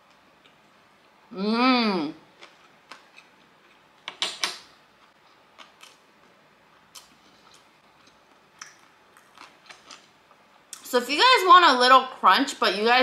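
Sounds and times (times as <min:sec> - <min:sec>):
mouth chewing with crunchy clicks: 0:06.9 - 0:10.9.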